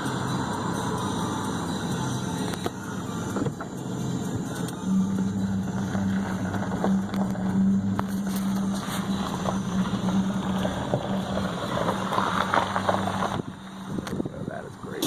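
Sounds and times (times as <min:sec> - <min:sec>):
low motor hum: 0:00.0 - 0:15.0
wind rustling on microphone: 0:12.2 - 0:14.6.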